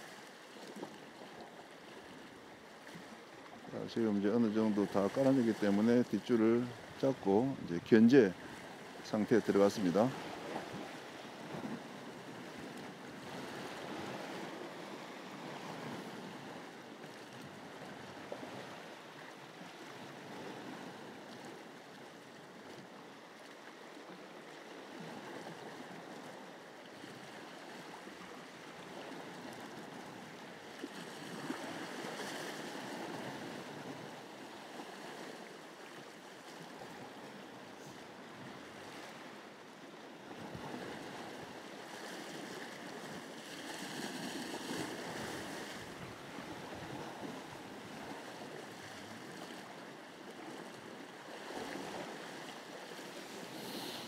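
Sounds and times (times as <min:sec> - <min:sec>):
sea waves washing against rocks: 0:03.7 - 0:19.0, 0:40.4 - 0:49.8.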